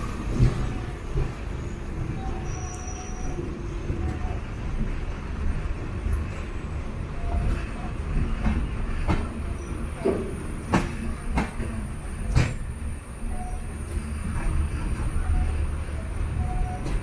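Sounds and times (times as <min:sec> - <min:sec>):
train coaches rumbling on track: 0:00.0 - 0:17.0.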